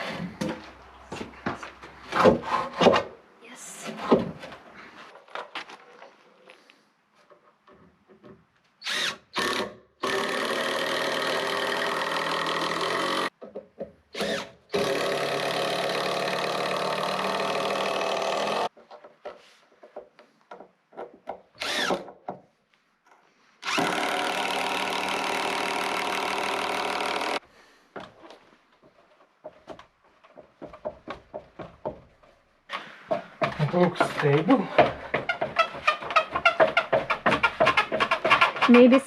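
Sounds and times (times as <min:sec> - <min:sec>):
power drill running: 0:08.8 - 0:13.3, 0:14.2 - 0:18.7, 0:21.6 - 0:22.0, 0:23.6 - 0:27.4.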